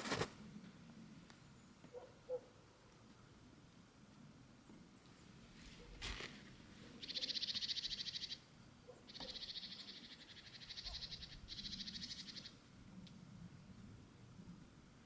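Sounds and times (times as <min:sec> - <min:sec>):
small bird trilling: 0:07.0 - 0:08.4, 0:09.1 - 0:12.5.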